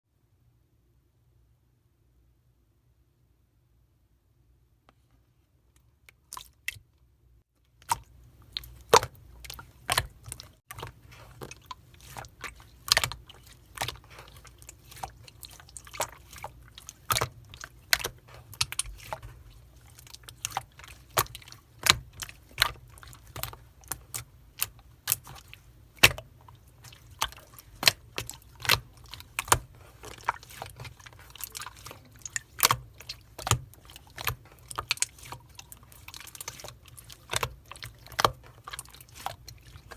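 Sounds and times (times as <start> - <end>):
slime squished by hand: 7.7 - 39.9.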